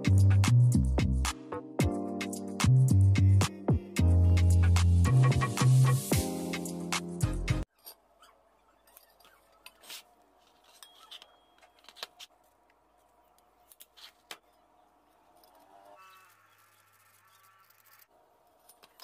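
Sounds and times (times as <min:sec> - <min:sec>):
music: 0:00.0 - 0:07.7.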